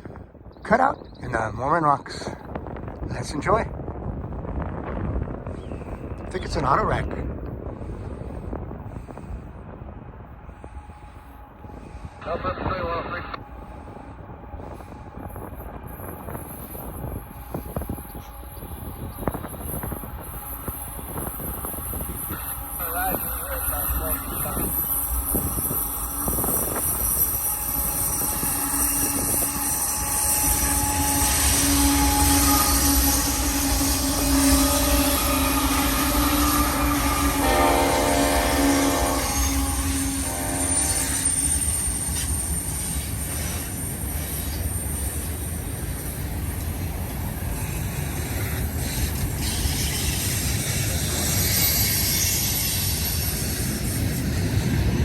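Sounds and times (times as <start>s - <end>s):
freight train rumble: 0.0s - 55.0s
wheels squealing on rails: 13.6s - 55.0s.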